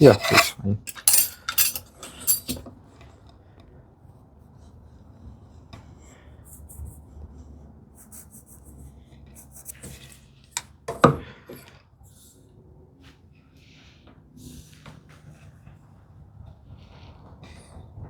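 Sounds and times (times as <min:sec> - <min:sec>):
scratchy strokes on wood: 0:04.6 - 0:10.3.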